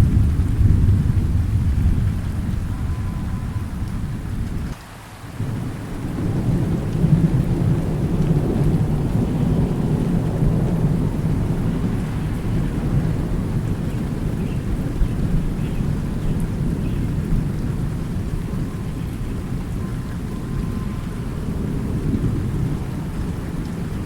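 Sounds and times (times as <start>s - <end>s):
rolling thunder rumble: 0.0s - 4.8s, 5.4s - 24.0s
steady rain: 0.0s - 24.0s.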